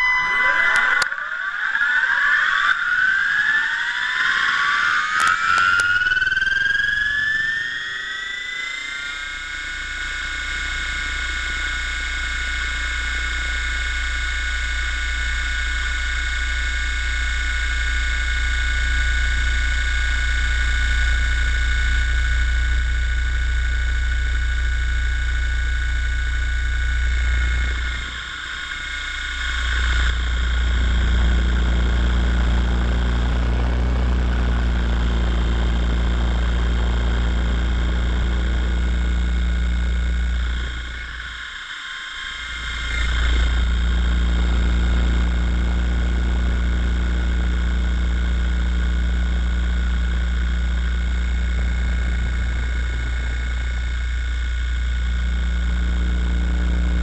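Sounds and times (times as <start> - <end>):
helicopter whine: 0.0 - 8.9, 26.6 - 46.8
low rumble: 22.1 - 41.4, 42.5 - 57.0.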